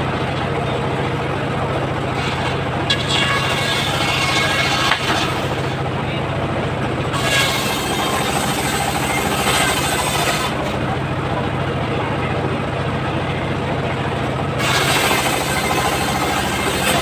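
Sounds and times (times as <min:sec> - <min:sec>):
circular sawmill running: 0:00.0 - 0:17.0
saw blade biting into wood: 0:02.2 - 0:05.8, 0:07.2 - 0:10.7, 0:14.6 - 0:17.0.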